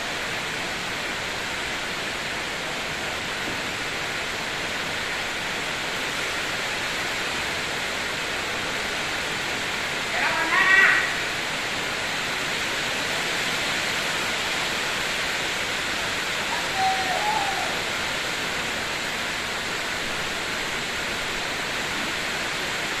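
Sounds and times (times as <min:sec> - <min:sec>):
heavy rain on water: 0:00.0 - 0:23.0
short wavering call: 0:16.5 - 0:17.9.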